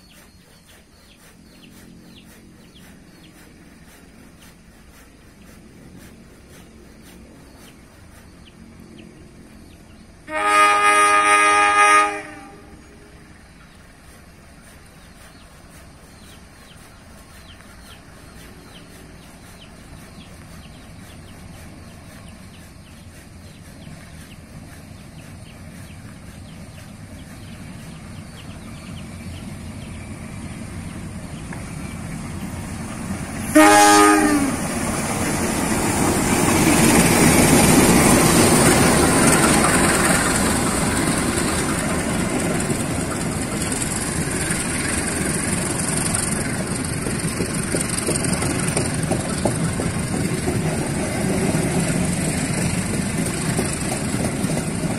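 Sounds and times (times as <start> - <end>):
diesel locomotive rumble: 0.0 - 54.9
train horn: 10.2 - 13.1, 33.4 - 34.7.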